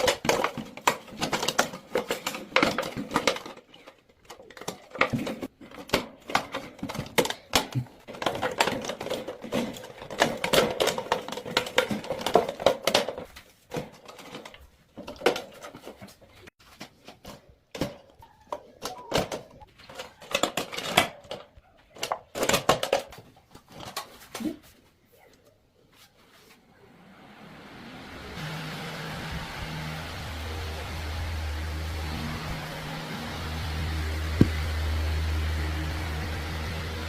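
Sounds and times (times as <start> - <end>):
hard objects clicking and knocking: 0.0 - 24.4.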